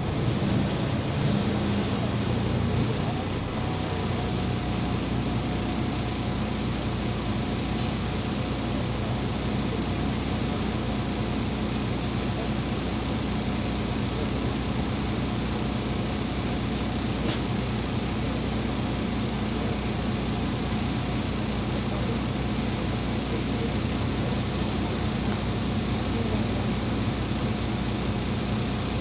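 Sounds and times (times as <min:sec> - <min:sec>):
rolling noise: 0:00.0 - 0:05.2
bus engine drone: 0:00.0 - 0:29.0.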